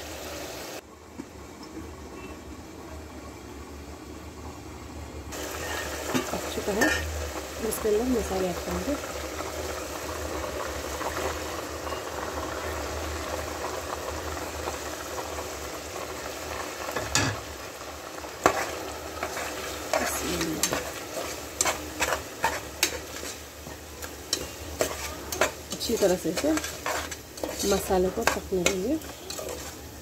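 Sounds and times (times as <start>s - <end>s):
food sizzling in hot oil: 0.0s - 0.8s, 5.3s - 30.0s
spatula knocking and scraping metal: 18.4s - 29.8s.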